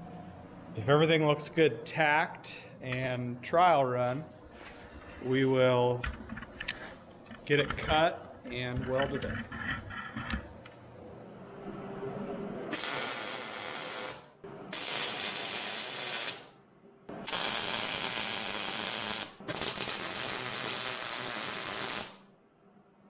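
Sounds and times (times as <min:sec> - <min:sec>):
welder arcing on steel: 0:12.7 - 0:16.6, 0:17.2 - 0:22.3.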